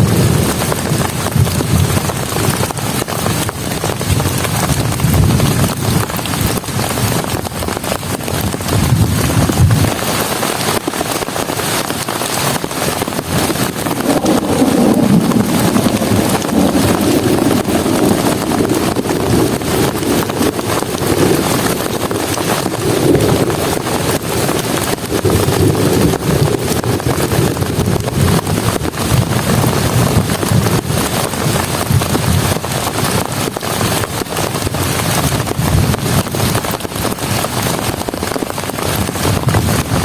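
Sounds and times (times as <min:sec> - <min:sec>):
heavy rain pouring: 0:00.0 - 0:40.0
low shifting rumble: 0:13.7 - 0:22.4.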